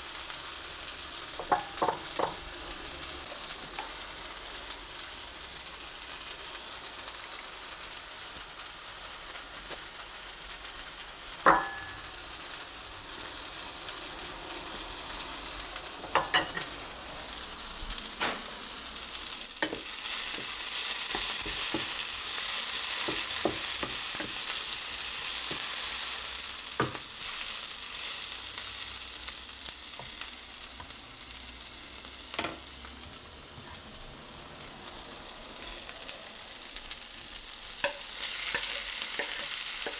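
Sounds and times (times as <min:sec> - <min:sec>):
food sizzling in a pan: 0:00.0 - 0:39.9
utensil knocking against pan: 0:11.5 - 0:12.0.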